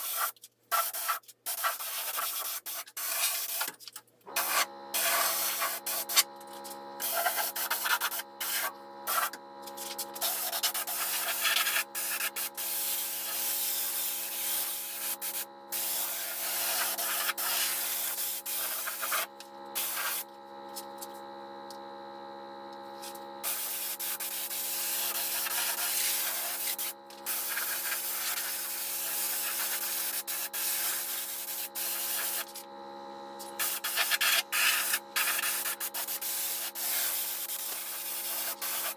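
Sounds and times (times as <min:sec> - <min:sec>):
steady hum: 0:03.1 - 0:38.9
sanding rubbing noise: 0:15.9 - 0:20.2.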